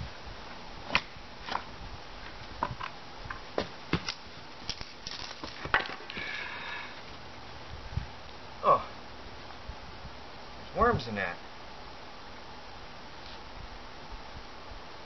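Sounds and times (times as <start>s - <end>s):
firewood knocking and clattering: 2.6s - 6.3s.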